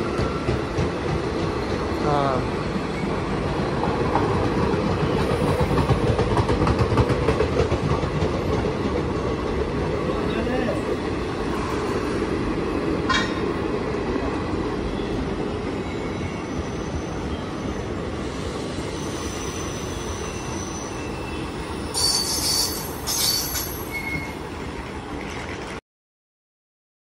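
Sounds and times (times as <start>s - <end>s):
train wheels rumbling on rail: 0.0s - 25.8s
high-pitched wheel squeals: 18.9s - 24.4s.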